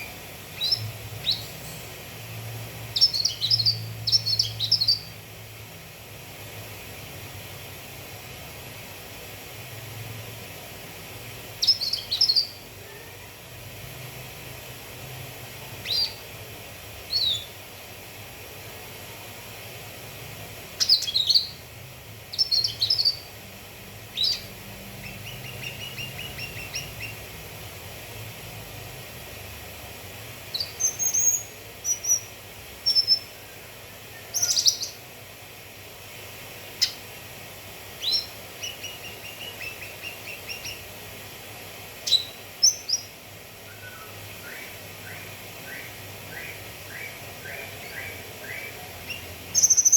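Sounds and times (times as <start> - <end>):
bird chirping: 0.0 - 5.2, 11.6 - 12.8, 15.8 - 16.3, 17.1 - 17.6, 20.8 - 21.7, 22.3 - 23.4, 24.1 - 27.3, 30.5 - 35.1, 36.7 - 37.0, 38.0 - 40.9, 42.0 - 49.9
faint steady hiss: 0.0 - 49.9.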